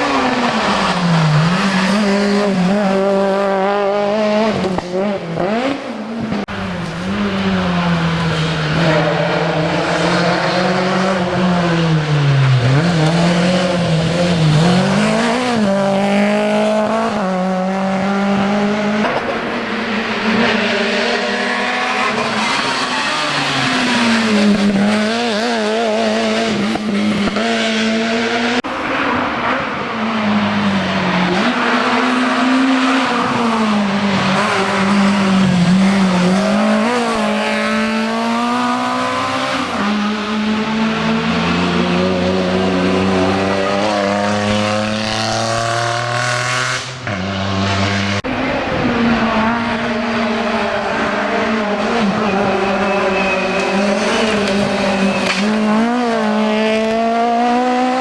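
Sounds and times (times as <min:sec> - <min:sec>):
rally car engines revving: 0:00.0 - 0:58.0
tyre squeal: 0:52.0 - 0:56.6.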